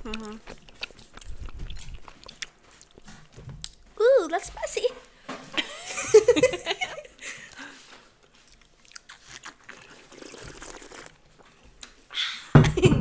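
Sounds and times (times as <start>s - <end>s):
chewing crunchy snack: 0.0s - 3.8s, 8.2s - 11.2s.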